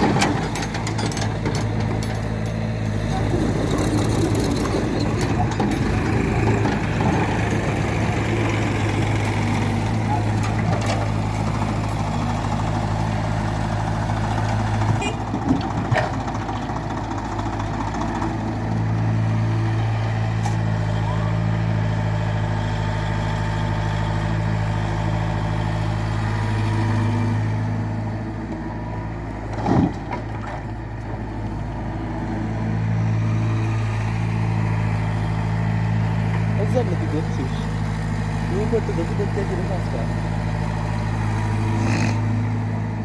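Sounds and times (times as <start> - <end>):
diesel engine running: 0.0 - 43.0
short clunks: 29.5 - 31.2.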